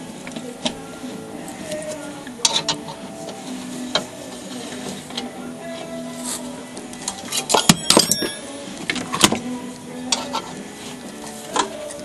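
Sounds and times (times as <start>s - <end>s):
tools clicking and clanking: 6.9s - 9.4s.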